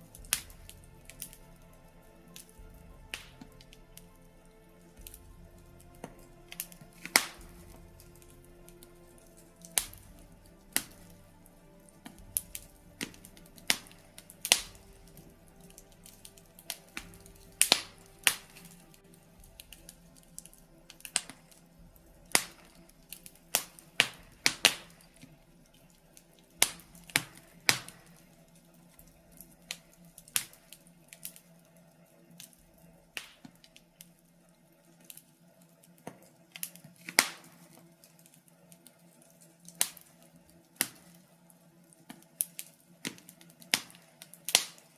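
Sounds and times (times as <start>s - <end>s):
fire crackling and popping: 0.0s - 44.9s.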